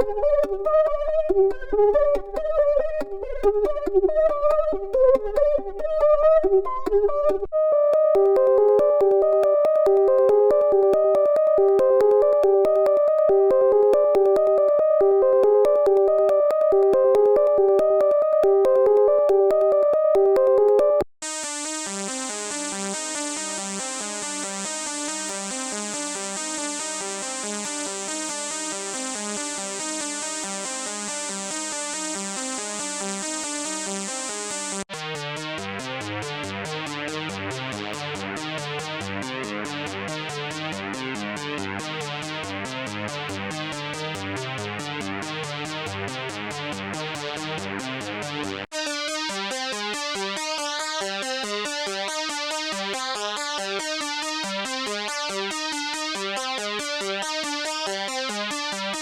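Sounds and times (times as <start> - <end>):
synthesizer note patterns: 0.0 - 59.0.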